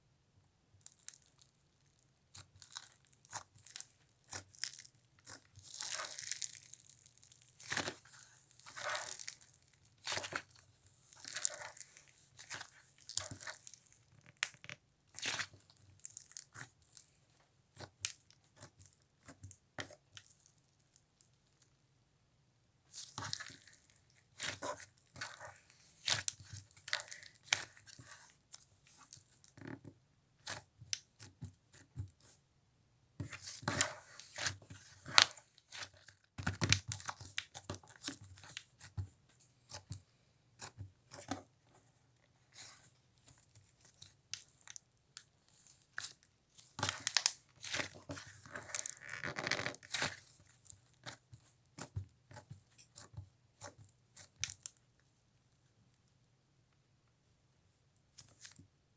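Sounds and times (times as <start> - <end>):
slime squished and stretched: 2.4 - 10.6, 11.2 - 17.0, 23.0 - 28.7, 45.9 - 50.3.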